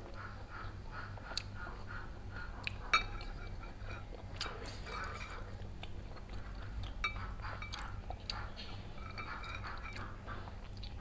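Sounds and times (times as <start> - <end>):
chewing food: 0.0 - 11.0
cutlery clinking on ceramic bowls: 2.9 - 5.5, 7.0 - 8.0, 8.6 - 10.2.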